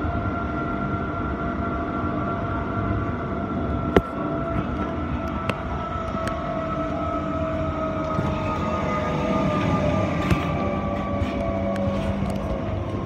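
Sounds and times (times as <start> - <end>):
electric whine: 0.0 - 13.0
wheels rumbling on track: 2.0 - 13.0.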